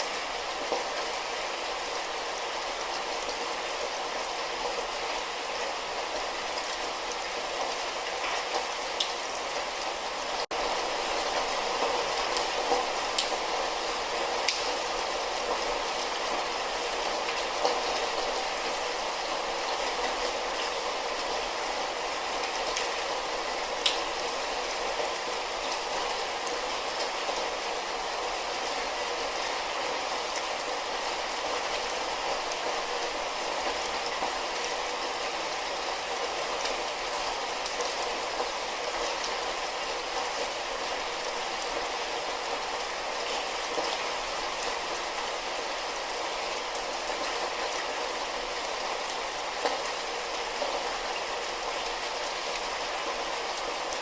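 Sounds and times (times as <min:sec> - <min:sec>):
light rain pattering: 0:00.0 - 0:54.0
raindrop ticks: 0:12.7 - 0:13.4, 0:14.4 - 0:14.8, 0:23.8 - 0:24.1.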